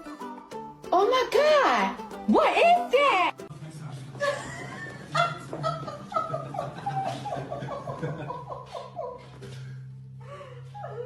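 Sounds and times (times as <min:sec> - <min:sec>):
steady low hum: 0:03.5 - 0:11.0
person laughing: 0:04.2 - 0:09.6.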